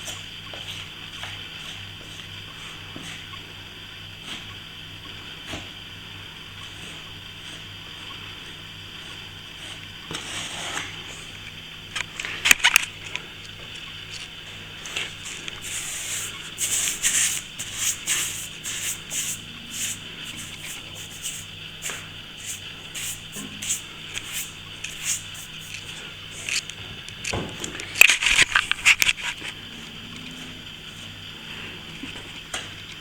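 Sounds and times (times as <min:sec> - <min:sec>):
steady low hum: 0:00.0 - 0:33.0
trowel scraping filler: 0:15.3 - 0:26.7.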